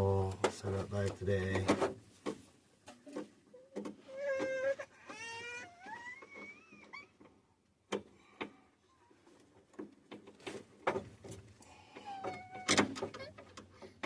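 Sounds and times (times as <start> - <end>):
sharp clicks and knocks: 0.2 - 4.0, 9.7 - 14.0.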